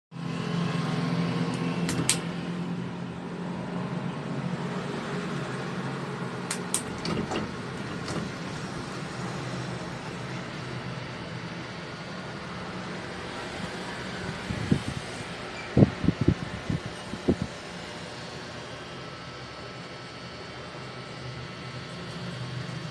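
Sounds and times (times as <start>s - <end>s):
electric fan running: 0.2s - 22.9s
sharp clicks: 1.5s - 2.3s, 6.5s - 7.4s.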